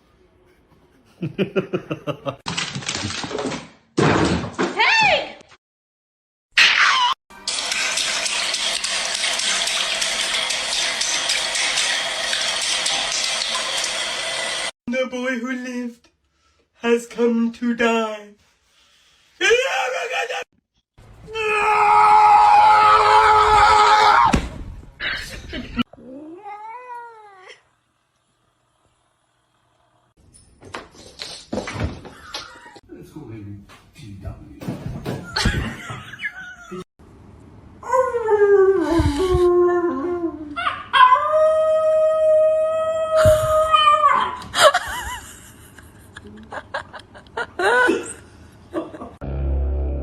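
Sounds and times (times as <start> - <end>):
long loud scream: 21.2 - 24.4.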